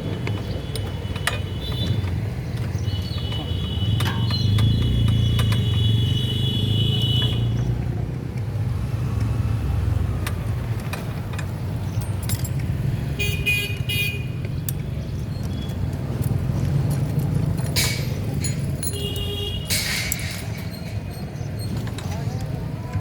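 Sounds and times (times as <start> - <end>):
vehicle engines rumbling: 0.0 - 23.0
vehicle horn: 4.9 - 7.5, 13.2 - 14.4
light metal clinks: 11.4 - 12.8, 16.2 - 22.2.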